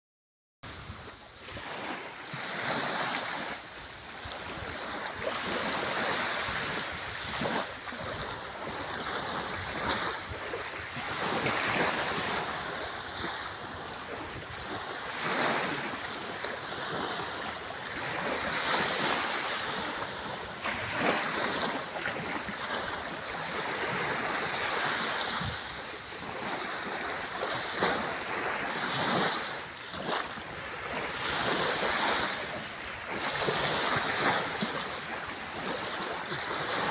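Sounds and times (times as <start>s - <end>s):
sea waves breaking on shore: 0.7s - 36.9s.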